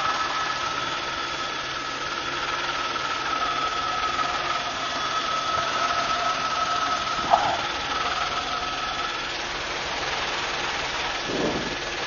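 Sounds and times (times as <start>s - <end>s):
high-pitched whine: 0.0s - 9.6s
steady engine noise: 0.0s - 12.0s.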